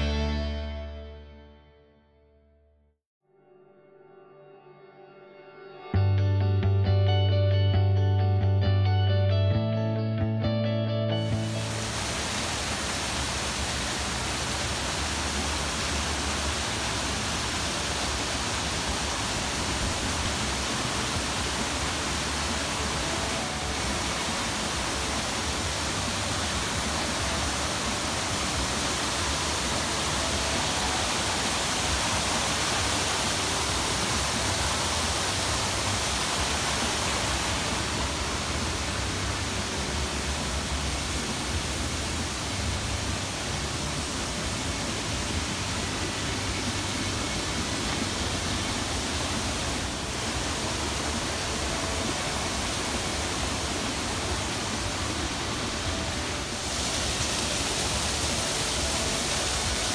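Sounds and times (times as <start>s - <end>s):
waterfall rushing over rocks: 11.2s - 59.9s.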